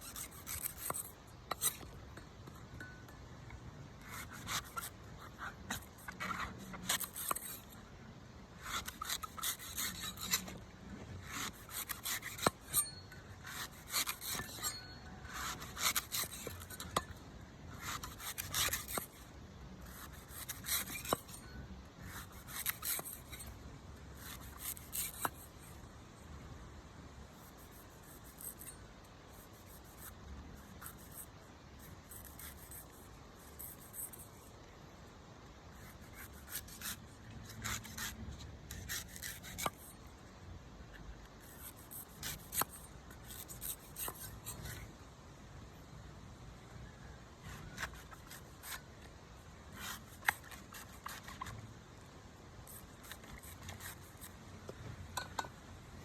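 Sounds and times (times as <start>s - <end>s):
blade scraping coconut: 0.0s - 2.0s, 4.0s - 7.8s, 8.6s - 10.6s, 11.2s - 23.6s, 24.2s - 25.7s, 27.4s - 34.5s, 35.8s - 40.0s, 41.4s - 44.9s, 47.4s - 49.0s, 49.7s - 51.6s, 52.6s - 54.4s.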